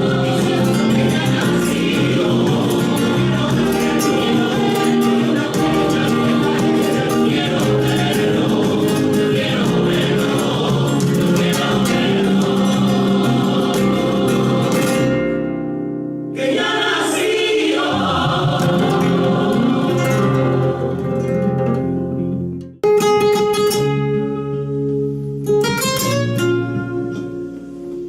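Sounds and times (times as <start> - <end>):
choir singing a carol: 0.0 - 15.5, 16.4 - 21.6
guitar accompaniment: 0.0 - 28.0.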